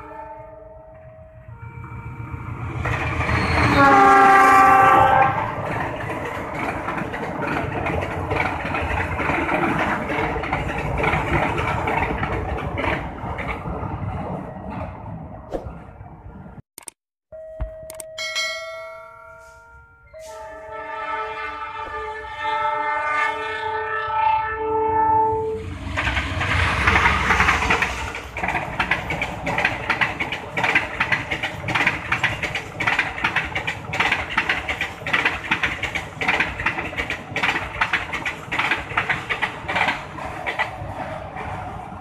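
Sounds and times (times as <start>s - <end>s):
multi-tone train horn blasts: 0.0s - 2.5s, 3.4s - 5.6s, 20.1s - 25.7s
locomotive rumbling past: 0.0s - 16.6s, 24.1s - 42.0s
wheels clicking over rail joints: 5.2s - 15.2s, 25.9s - 42.0s.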